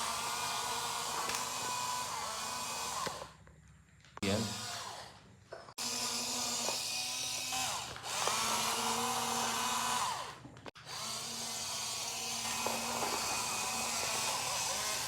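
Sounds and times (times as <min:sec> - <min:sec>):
small electric motors whirring: 0:00.0 - 0:03.5, 0:04.2 - 0:15.0.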